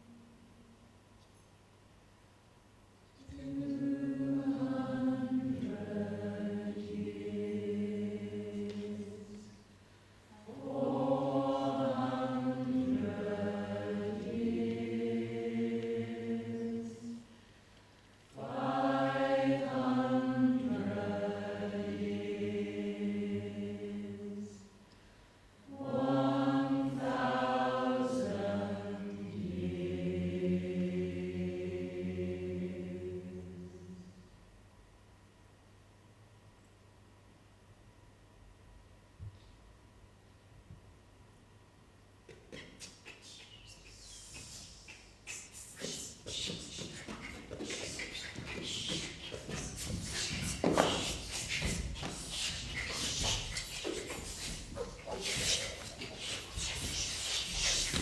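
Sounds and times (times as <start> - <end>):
choir singing in harmony: 3.2 - 9.7, 10.4 - 17.4, 18.4 - 24.7, 25.7 - 34.2, 45.8 - 58.0.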